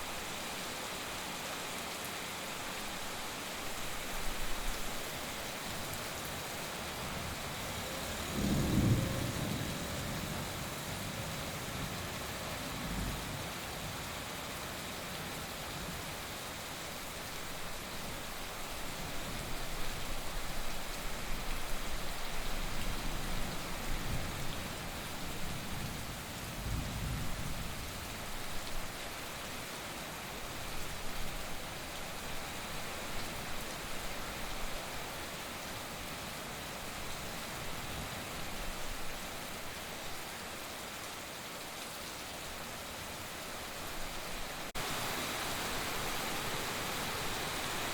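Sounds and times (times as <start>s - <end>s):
heavy rain falling: 0.0s - 47.9s
thunder rumble: 7.1s - 12.0s.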